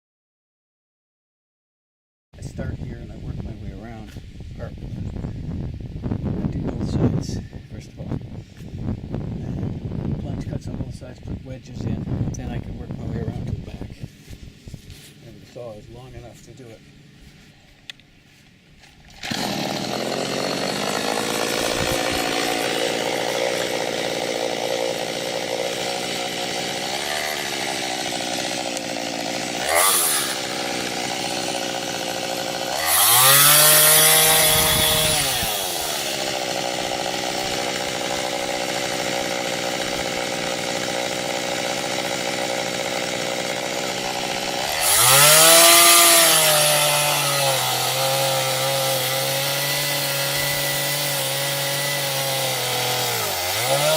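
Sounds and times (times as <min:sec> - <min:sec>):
chainsaw idling and revving: 0:19.1 - 0:53.9.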